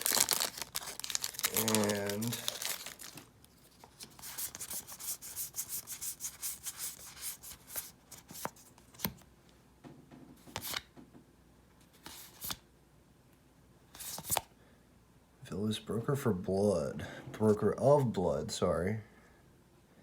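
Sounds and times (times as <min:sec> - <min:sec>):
cards rubbing swishes: 0:03.7 - 0:08.6.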